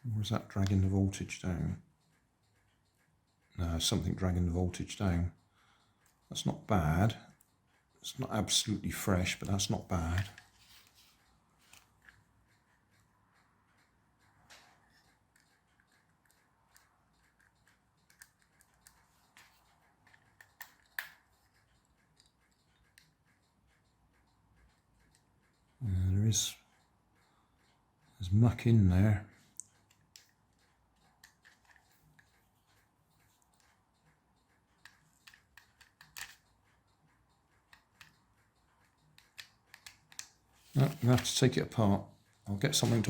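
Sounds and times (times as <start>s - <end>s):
plastic toy car clicks and taps: 16.2s - 21.2s, 34.8s - 36.4s, 39.2s - 41.3s
small objects clicking and tapping: 34.8s - 36.4s.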